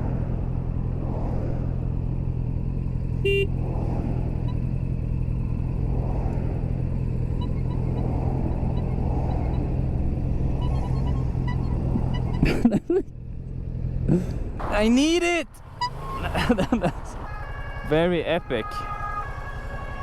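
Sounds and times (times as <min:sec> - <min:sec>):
motorcycle engine running: 0:01.7 - 0:14.6
horn toot: 0:03.2 - 0:03.6.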